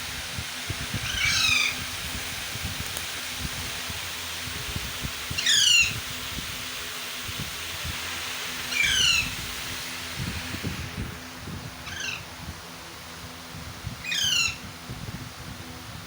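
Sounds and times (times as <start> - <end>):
parakeet chick squawking: 1.0 - 1.8, 5.3 - 6.0, 8.7 - 9.4, 11.8 - 12.3, 14.0 - 14.6.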